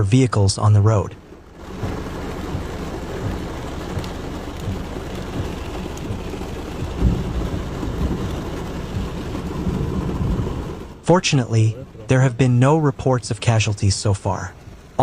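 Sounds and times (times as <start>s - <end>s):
heavy rain: 0.0s - 15.0s
low rumble: 1.1s - 12.4s
low thump: 6.8s - 8.2s.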